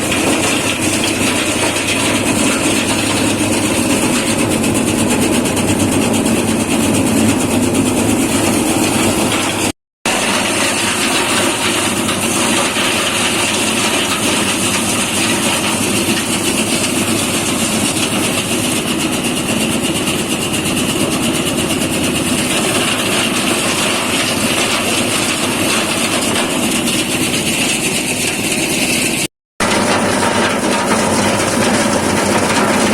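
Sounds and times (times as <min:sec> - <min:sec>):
threshing machine running: 0:00.0 - 0:32.9.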